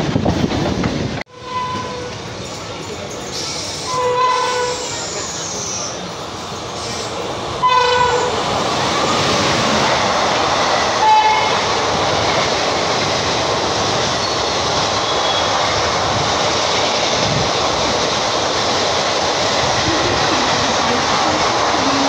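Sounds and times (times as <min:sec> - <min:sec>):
train wheels rumbling and rattling: 0:00.0 - 0:22.0
locomotive horn blasts: 0:01.3 - 0:02.2, 0:03.9 - 0:05.0, 0:07.6 - 0:08.4, 0:11.0 - 0:11.7.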